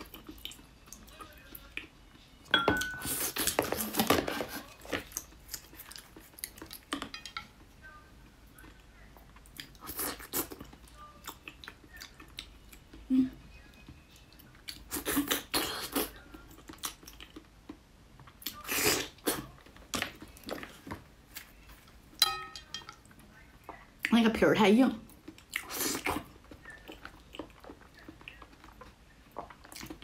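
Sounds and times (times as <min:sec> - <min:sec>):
biting and chewing sausage: 0:25.1 - 0:30.0.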